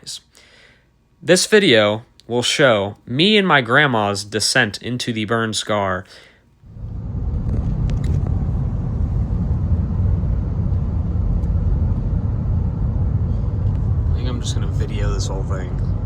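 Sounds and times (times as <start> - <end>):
car driving at highway speed: 6.7 - 16.0.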